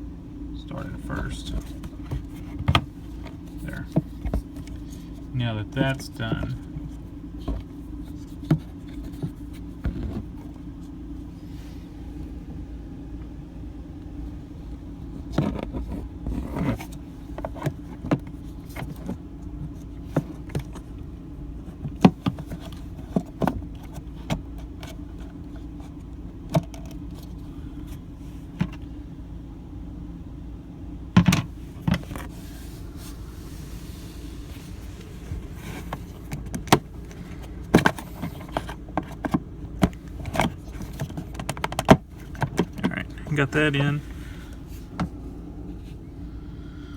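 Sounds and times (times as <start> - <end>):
steady low hum: 0.0 - 46.9
plastic valve clicking and scraping: 15.2 - 20.9, 21.7 - 27.4, 34.8 - 43.4.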